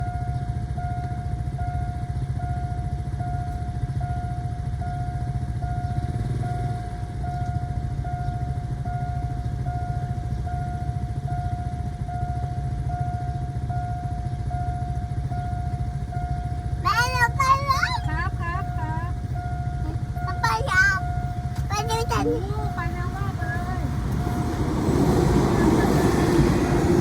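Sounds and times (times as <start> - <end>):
low rumble of a train: 0.0 - 27.0
level crossing electronic warning tone: 14.6 - 27.0.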